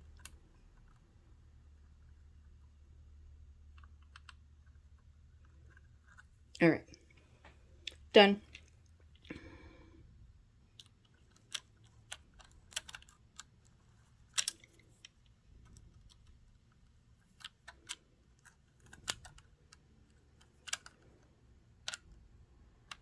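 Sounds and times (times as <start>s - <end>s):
small metal parts clicking: 0.1s - 1.0s, 10.7s - 23.0s.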